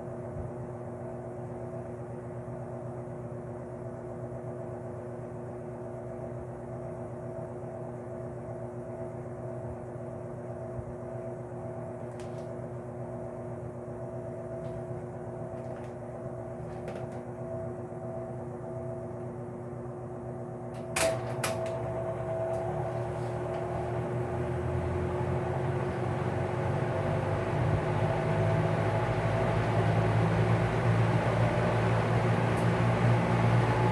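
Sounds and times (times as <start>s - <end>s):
box fan motor humming: 10.6s - 33.9s.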